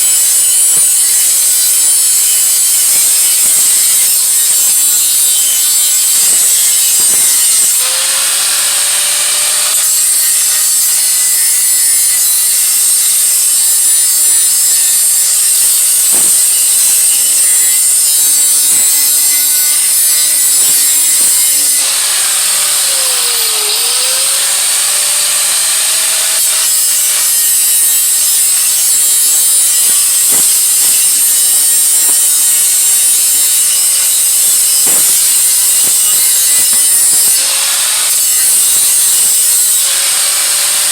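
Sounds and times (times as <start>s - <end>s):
electric grinder on metal: 0.0s - 40.9s.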